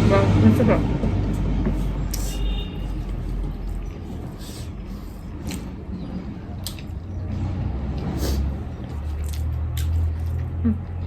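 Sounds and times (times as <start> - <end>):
steady low rumble: 0.0 - 2.2
chewing: 6.6 - 7.1, 7.9 - 11.0.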